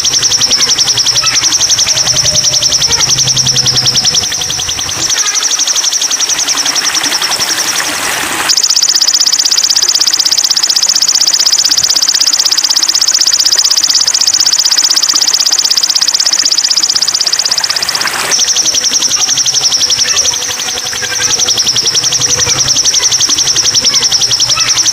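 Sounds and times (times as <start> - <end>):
high-pitched songbird trill: 0.0 - 7.8.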